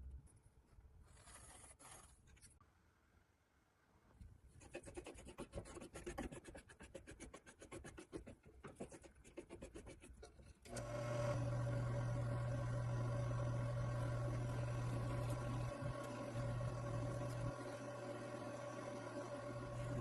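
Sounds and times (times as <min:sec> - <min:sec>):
machine humming: 0:10.7 - 0:20.0.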